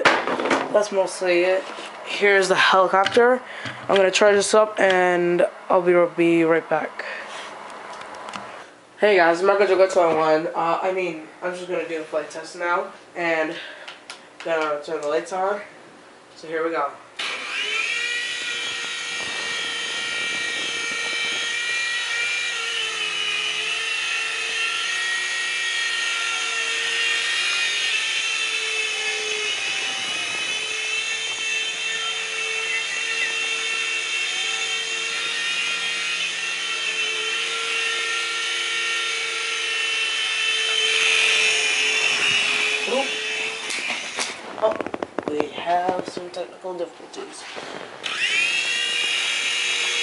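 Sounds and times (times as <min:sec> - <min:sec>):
toy helicopter motors whining: 0:17.2 - 0:45.0, 0:47.7 - 0:50.0.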